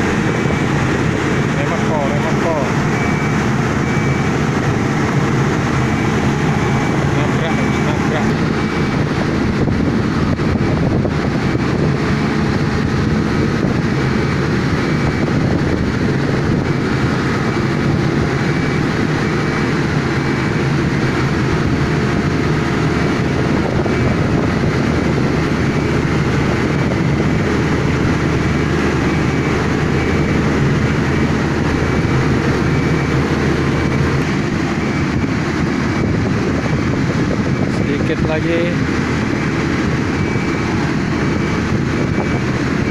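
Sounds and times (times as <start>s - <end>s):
large engine humming: 0.0s - 42.9s.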